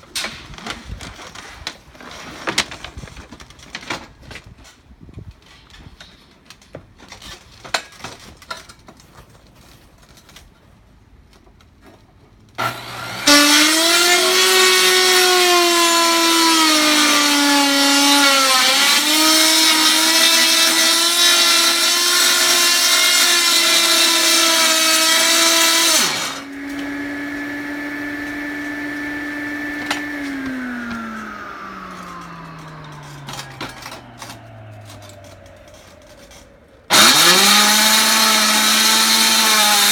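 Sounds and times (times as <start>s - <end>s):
power cutter cutting roofing: 12.6s - 39.9s.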